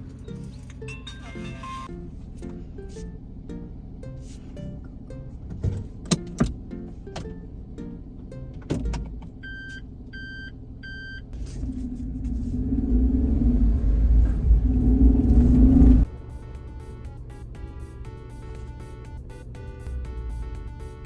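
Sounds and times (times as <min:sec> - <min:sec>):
car engine and road rumble: 0:00.0 - 0:21.0
short electronic beeps: 0:09.4 - 0:11.3.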